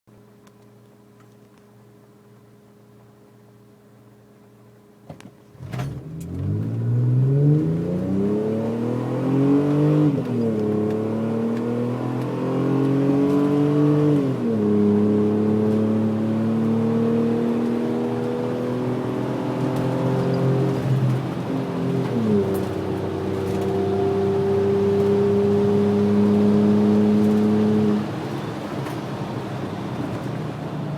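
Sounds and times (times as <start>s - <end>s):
engine starting and revving: 5.6s - 10.0s.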